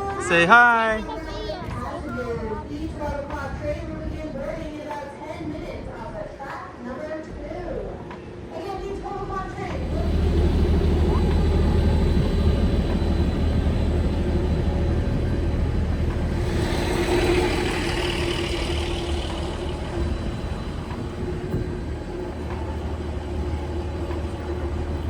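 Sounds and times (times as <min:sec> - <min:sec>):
large engine idling: 0:09.6 - 0:25.0
hiss: 0:15.9 - 0:21.3.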